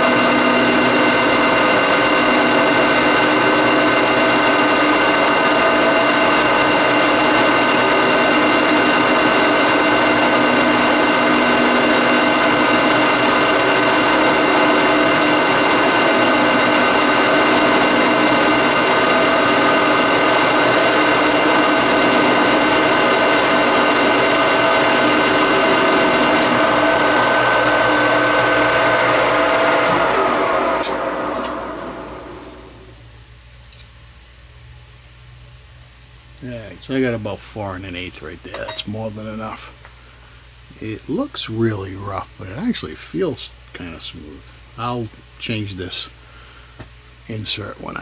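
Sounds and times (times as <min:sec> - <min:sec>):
lathe cutting steel: 0:00.0 - 0:33.0
metal lathe whining: 0:00.0 - 0:33.0.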